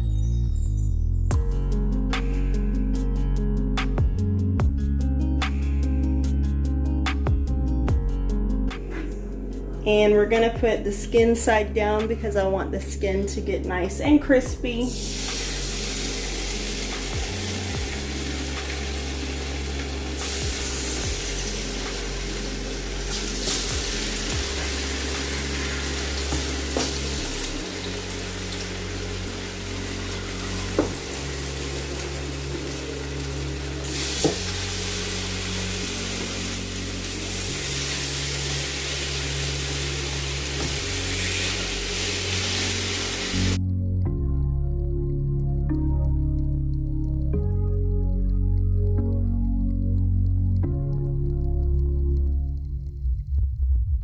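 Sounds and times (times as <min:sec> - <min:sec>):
background music: 0:00.0 - 0:54.0
chicken sizzling in oil: 0:14.9 - 0:43.6.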